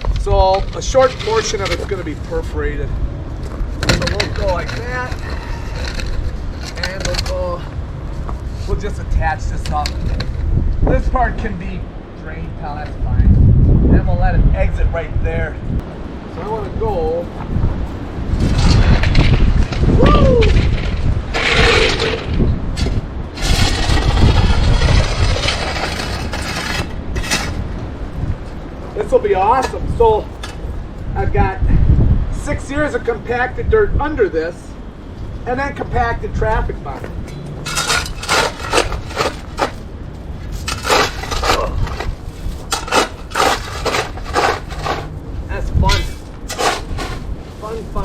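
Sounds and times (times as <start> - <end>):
wind buffeting microphone: 0.0 - 48.0
shovel digging into gravel: 0.6 - 1.9, 3.8 - 7.5, 21.4 - 22.4, 37.6 - 39.8, 40.6 - 45.1, 45.9 - 47.3.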